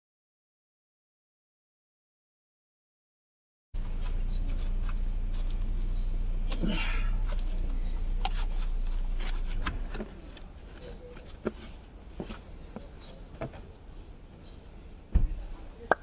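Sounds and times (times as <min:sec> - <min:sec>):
low machine hum: 0:03.8 - 0:11.0.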